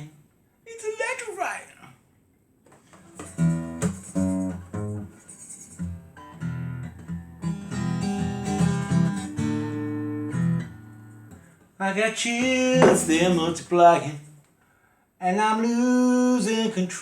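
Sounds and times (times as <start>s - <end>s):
acoustic guitar strumming chords: 5.9s - 11.5s, 12.4s - 14.2s.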